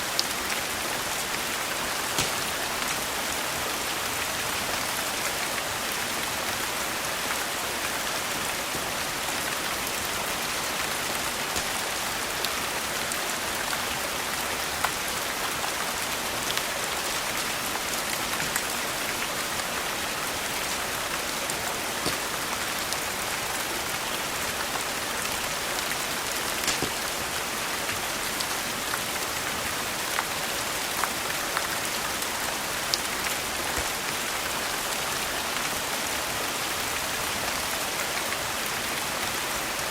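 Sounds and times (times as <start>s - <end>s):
steady rain falling: 0.0s - 39.9s
wood fire crackling: 1.0s - 5.0s, 10.2s - 13.2s, 17.8s - 30.3s.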